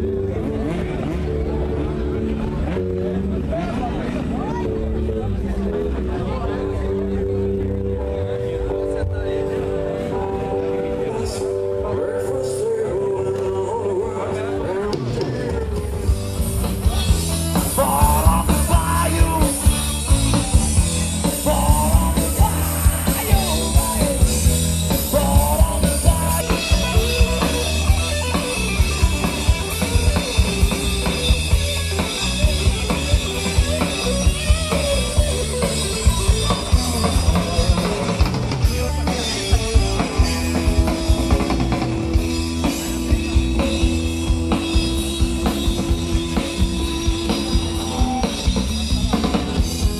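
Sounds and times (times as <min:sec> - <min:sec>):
rock music: 0:00.0 - 0:49.9
drum-kit beat: 0:14.9 - 0:49.9
person singing: 0:16.9 - 0:27.9.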